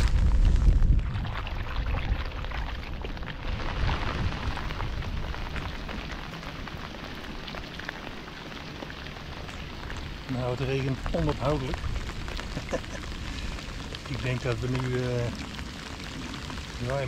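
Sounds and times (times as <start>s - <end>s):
strong low rumble: 0.0s - 7.8s
steady rain falling: 2.3s - 17.0s.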